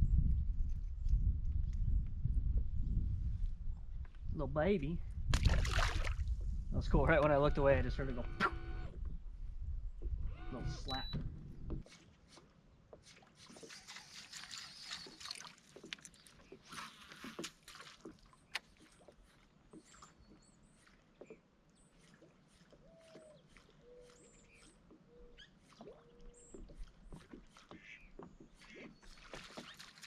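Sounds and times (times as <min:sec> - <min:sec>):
water splashing and dripping: 0:05.3 - 0:06.4, 0:11.8 - 0:30.0.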